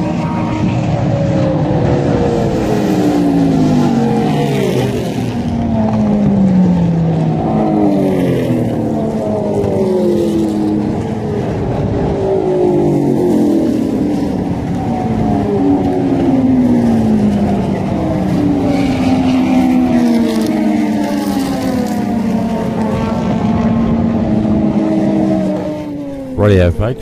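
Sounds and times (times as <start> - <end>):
race cars passing at speed: 0.0 - 27.0.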